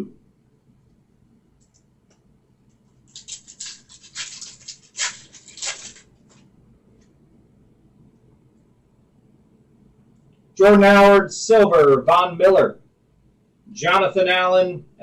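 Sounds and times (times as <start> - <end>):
cards rubbing together: 3.0 - 6.4
plastic wrapper crinkling and tearing: 3.0 - 6.4.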